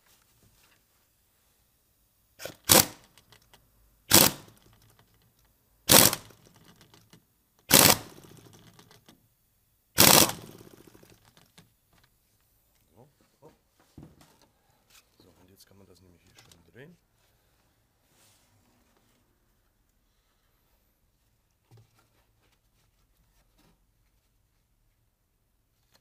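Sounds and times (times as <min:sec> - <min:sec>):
pneumatic impact wrench hammering: 0:02.4 - 0:03.2, 0:04.1 - 0:04.7, 0:05.9 - 0:09.0, 0:10.0 - 0:11.4.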